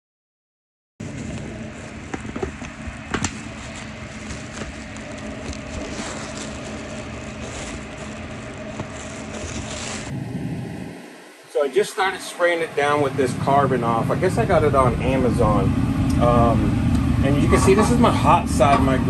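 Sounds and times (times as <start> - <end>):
mechanical hum and rumble: 1.0 - 19.0.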